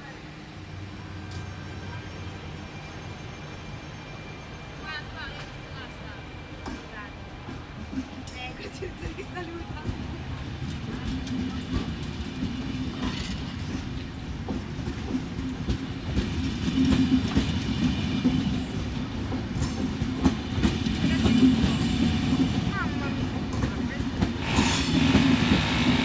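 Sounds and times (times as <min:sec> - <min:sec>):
train wheels clacking over rail joints: 0:06.6 - 0:26.0.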